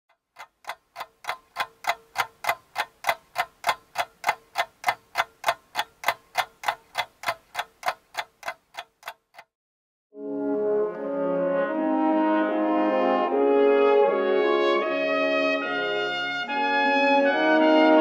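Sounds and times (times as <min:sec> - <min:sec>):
clock ticking: 0:00.1 - 0:09.5
brass music: 0:10.2 - 0:18.0.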